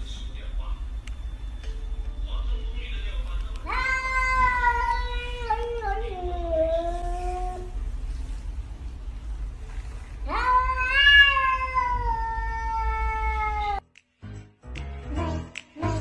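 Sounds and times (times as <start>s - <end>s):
cat meowing: 3.6s - 7.8s, 10.2s - 13.8s
music with a steady beat: 13.8s - 16.0s.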